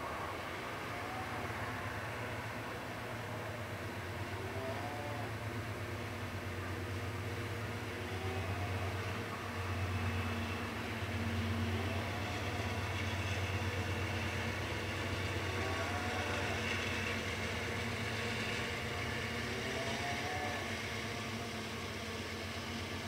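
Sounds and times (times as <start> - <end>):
low drone: 0.0 - 23.0
freight train cars rolling: 5.3 - 23.0.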